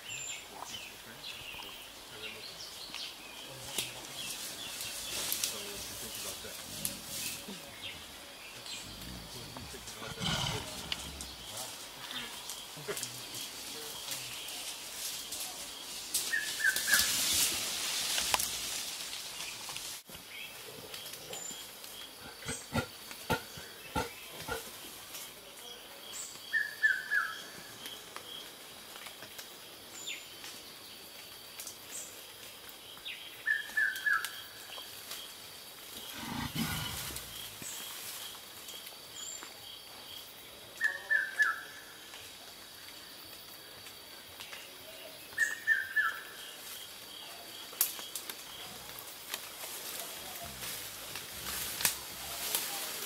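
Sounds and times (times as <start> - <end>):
gorilla grunt: 8.8 - 11.5, 22.2 - 24.7, 36.1 - 37.4.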